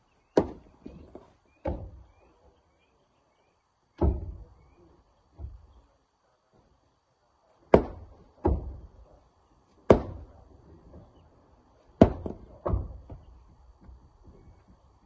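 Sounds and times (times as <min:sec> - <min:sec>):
heavy thuds of rock: 0:12.0 - 0:14.1.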